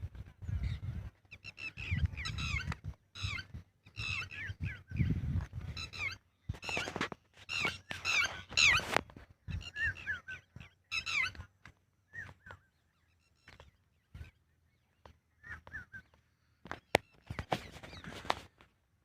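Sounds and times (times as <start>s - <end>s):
lapwing shrill calls: 7.5s - 8.9s, 9.6s - 11.4s.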